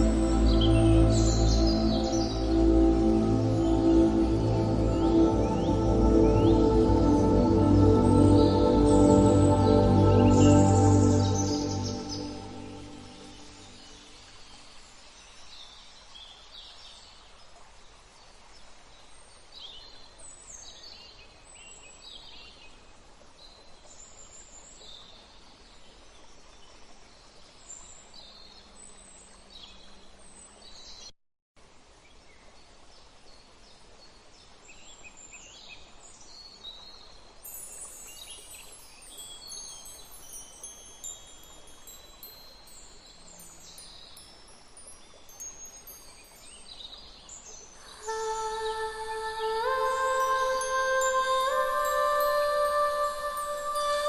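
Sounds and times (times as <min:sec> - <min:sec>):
wind chimes ringing: 0:00.0 - 0:13.8, 0:37.4 - 0:48.6, 0:49.4 - 0:54.0
small birds chirping: 0:00.0 - 0:17.2
soft steady hiss: 0:00.0 - 0:54.0.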